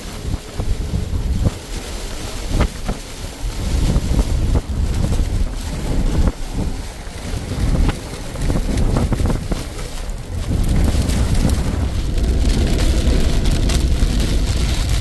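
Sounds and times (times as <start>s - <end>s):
storm wind buffeting microphone: 0.0s - 15.0s.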